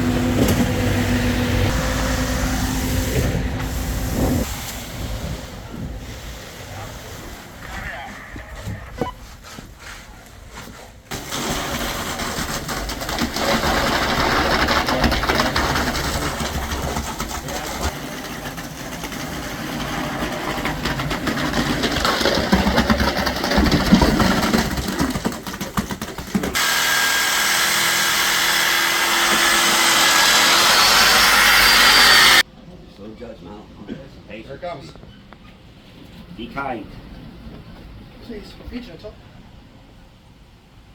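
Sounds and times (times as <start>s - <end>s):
concrete mixer truck running: 0.0s - 7.6s, 11.1s - 32.4s.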